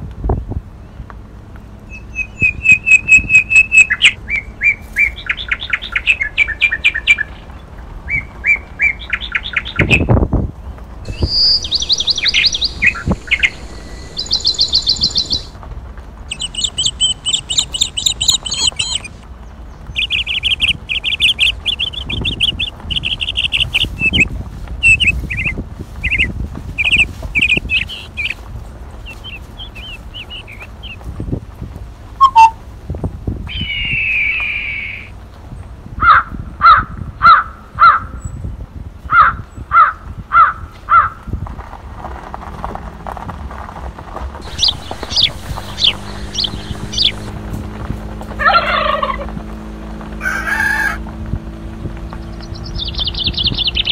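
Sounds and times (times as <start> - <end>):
songbirds singing: 0.3 - 15.6, 16.3 - 31.3, 33.5 - 35.8, 44.4 - 47.4, 51.8 - 53.9.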